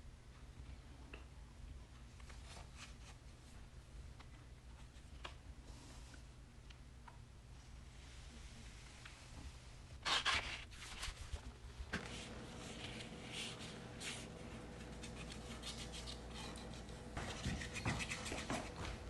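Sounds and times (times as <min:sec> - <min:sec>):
paintbrush brushing on wood: 0:12.0 - 0:19.0.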